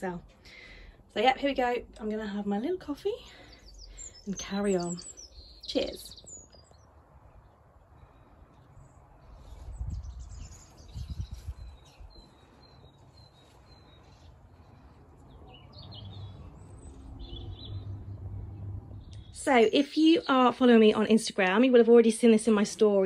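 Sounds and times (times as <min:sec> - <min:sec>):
small birds chirping: 0:00.0 - 0:21.6
faint outdoor background noise: 0:00.0 - 0:23.0
low rumbles: 0:14.5 - 0:19.8.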